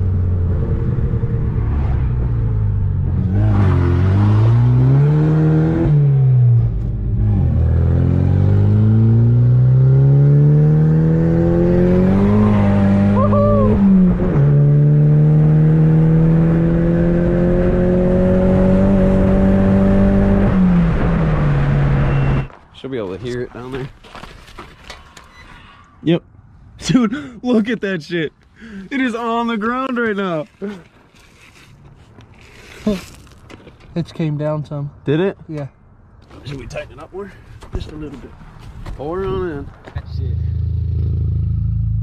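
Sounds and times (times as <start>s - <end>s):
car engine accelerating: 0.0s - 22.5s, 40.0s - 42.0s.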